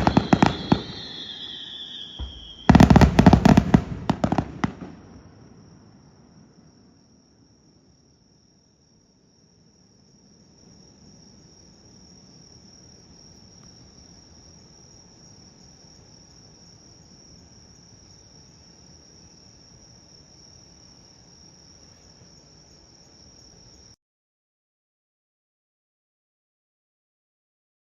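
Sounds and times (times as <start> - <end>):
crickets chirring: 0.0 - 24.0.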